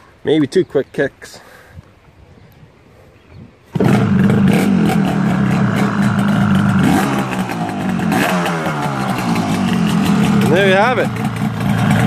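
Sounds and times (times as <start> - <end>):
motorcycle engine kick-started: 3.7 - 12.0
motorcycle throttle blips: 3.7 - 12.0.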